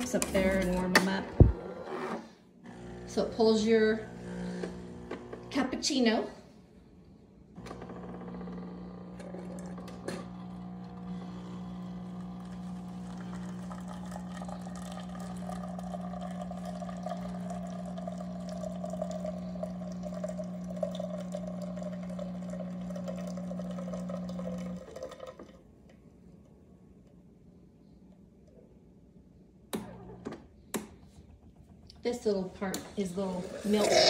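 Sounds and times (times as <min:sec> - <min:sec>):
espresso machine pump hum: 0:02.6 - 0:05.7, 0:07.6 - 0:25.6
liquid pouring into cup: 0:09.2 - 0:25.7.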